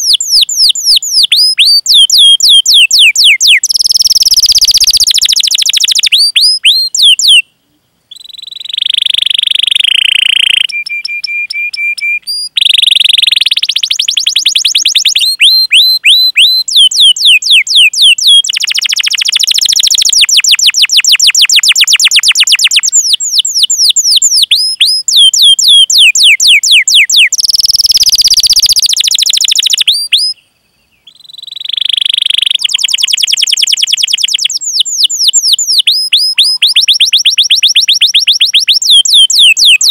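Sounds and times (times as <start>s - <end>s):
canary singing whistles and trills: 0.0s - 39.9s.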